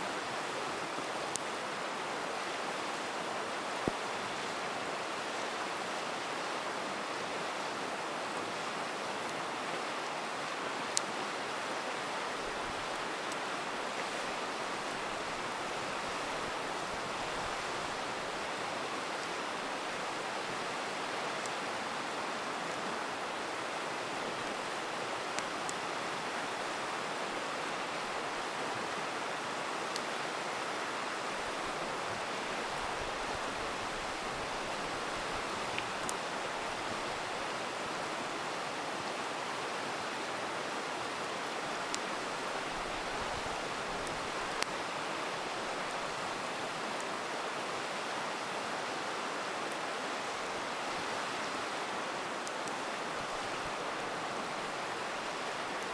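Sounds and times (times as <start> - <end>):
river rushing: 0.0 - 55.9
campfire crackling pops: 24.4 - 25.8, 32.7 - 37.2, 41.8 - 44.9.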